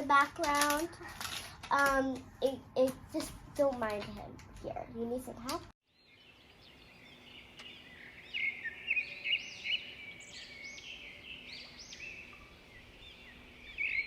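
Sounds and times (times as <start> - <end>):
small bird chirping: 5.9 - 14.0.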